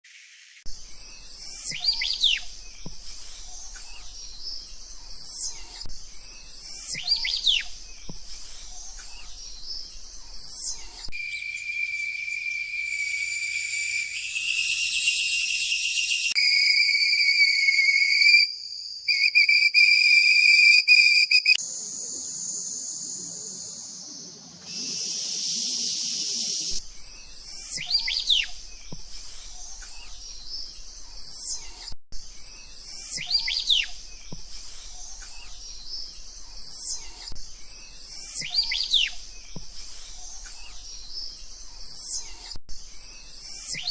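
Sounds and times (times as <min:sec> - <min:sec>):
whistled bird calls: 0:01.0 - 0:21.6, 0:24.7 - 0:28.6, 0:32.6 - 0:34.0, 0:36.7 - 0:39.2, 0:43.4 - 0:43.9.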